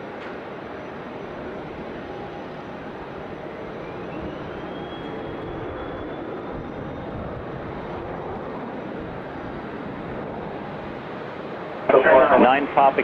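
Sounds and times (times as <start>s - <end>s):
jet engines rumbling and whining: 0.0s - 13.0s.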